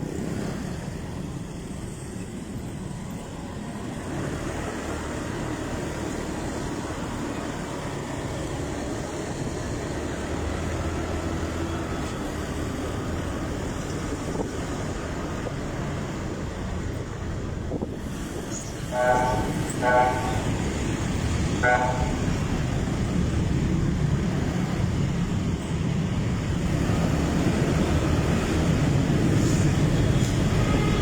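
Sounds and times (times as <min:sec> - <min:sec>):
wind rushing over microphone: 0:14.0 - 0:30.6.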